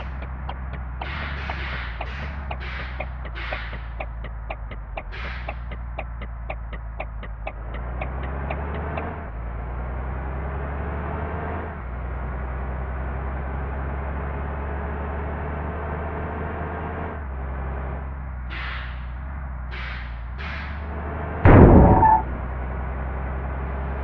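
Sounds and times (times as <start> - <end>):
regular ticking: 0.0 - 10.0
large vehicle engine rumble: 0.0 - 24.0.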